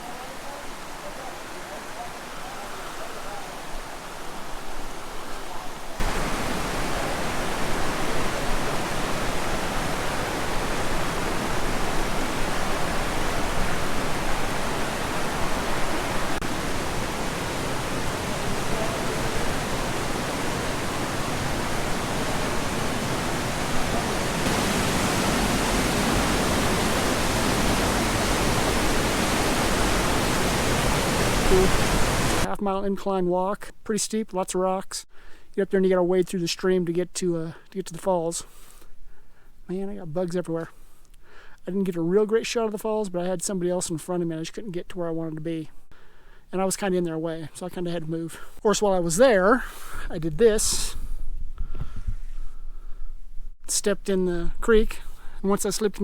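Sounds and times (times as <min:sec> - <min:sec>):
waterfall rushing: 0:00.0 - 0:32.5.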